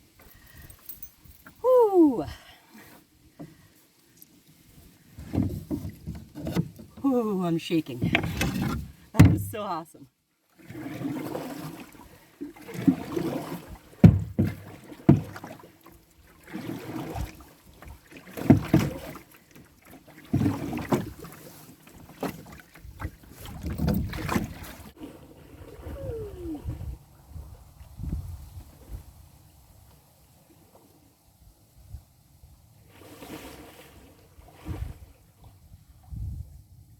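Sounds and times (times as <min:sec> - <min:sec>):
paddle stroking through water: 0:02.8 - 0:09.8, 0:10.5 - 0:27.6, 0:32.8 - 0:35.7.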